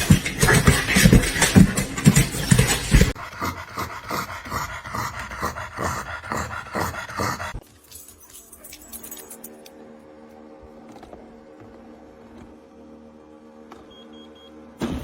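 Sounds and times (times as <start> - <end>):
dog panting: 0.0 - 7.6.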